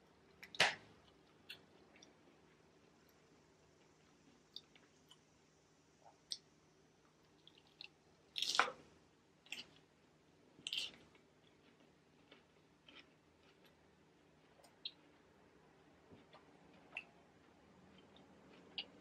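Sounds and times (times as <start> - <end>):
person chewing salad: 10.6 - 19.0.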